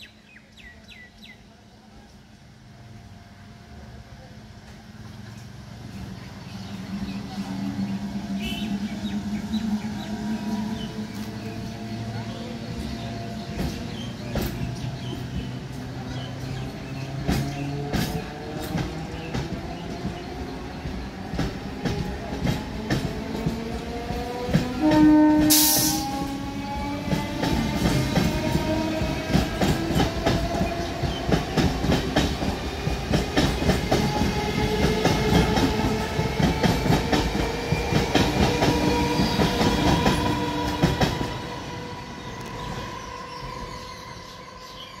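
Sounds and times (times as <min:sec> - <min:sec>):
hiss: 0:25.5 - 0:26.1.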